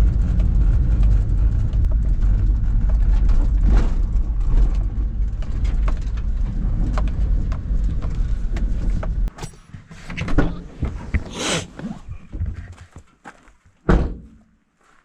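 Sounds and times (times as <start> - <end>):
engine running: 0.0 - 9.7.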